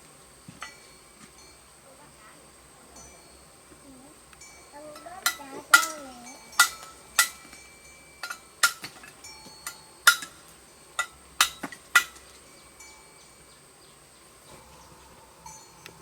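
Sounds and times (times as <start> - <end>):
sharp ringing knocks: 0.5 - 1.6, 4.5 - 13.6.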